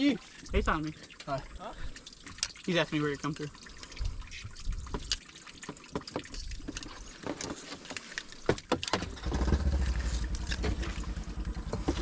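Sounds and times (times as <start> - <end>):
water trickling and dripping: 0.0 - 12.0
vehicle engine running low: 9.1 - 12.0.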